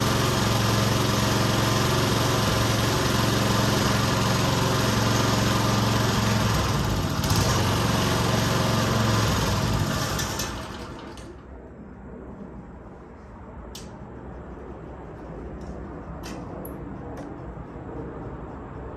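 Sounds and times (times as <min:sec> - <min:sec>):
lawn mower engine running: 0:00.0 - 0:11.4.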